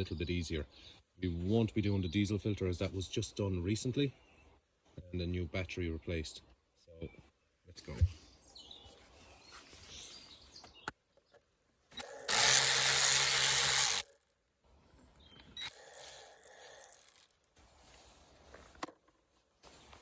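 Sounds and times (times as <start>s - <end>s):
cordless power driver running: 12.0s - 14.3s, 15.6s - 17.3s.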